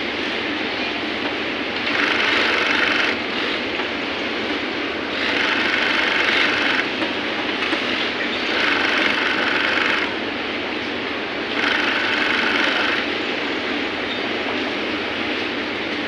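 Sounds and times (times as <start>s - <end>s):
sewing machine stitching: 1.8s - 3.6s, 5.1s - 6.9s, 8.4s - 10.2s, 11.5s - 13.1s.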